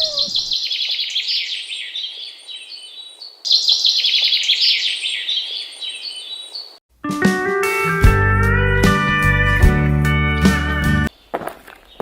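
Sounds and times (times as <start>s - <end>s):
songbird trilled chirps: 0.0s - 6.8s.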